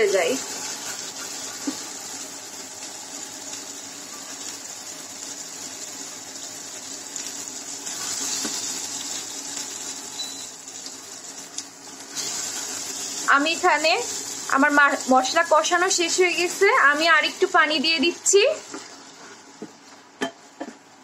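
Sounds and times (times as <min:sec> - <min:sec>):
paste sizzling in oil: 0:00.0 - 0:20.0.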